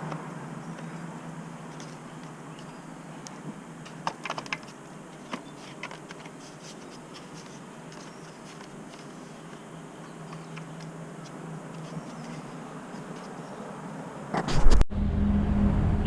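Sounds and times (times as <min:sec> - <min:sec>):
small tools clicking and tapping: 0:01.7 - 0:12.4.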